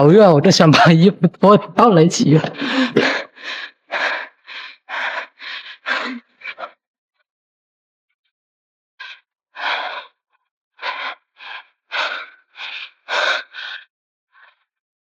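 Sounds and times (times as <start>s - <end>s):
person panting heavily: 2.2s - 6.8s, 9.0s - 10.2s, 10.8s - 14.6s.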